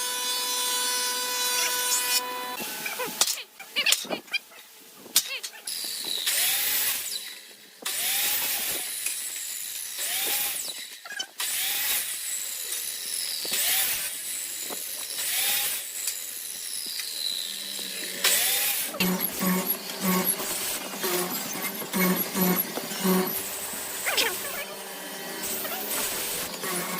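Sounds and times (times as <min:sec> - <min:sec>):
tool scraping wood: 0:16.7 - 0:24.6.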